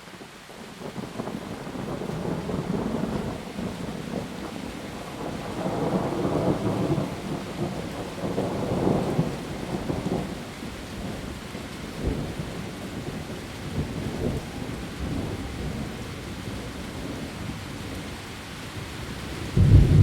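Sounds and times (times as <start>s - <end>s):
heavy rain on leaves: 0.0s - 20.0s
low thunder rumble: 19.3s - 20.0s.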